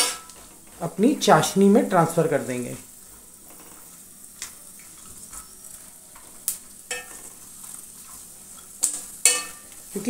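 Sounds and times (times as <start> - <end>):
nuts sizzling in fat: 0.0 - 10.0
metal spoon clicking on pan: 8.8 - 9.6.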